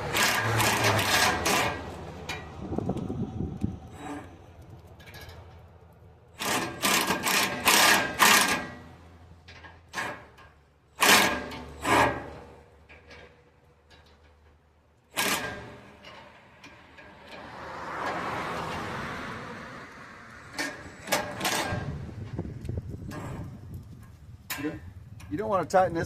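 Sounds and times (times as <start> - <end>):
handheld power tool bursts: 6.4 - 8.9.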